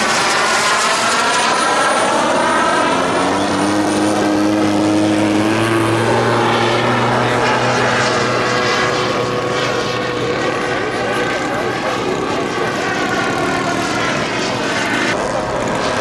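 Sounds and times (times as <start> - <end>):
model airplane engine droning: 0.0 - 16.0.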